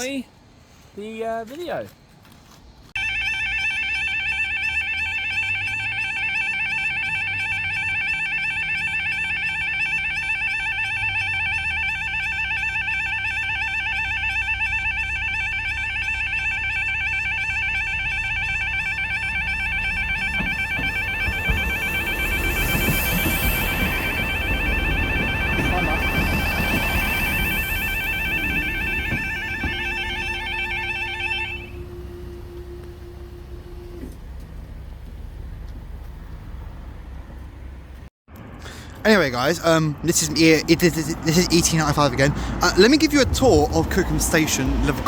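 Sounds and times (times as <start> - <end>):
level crossing alarms warbling: 3.0 - 34.2.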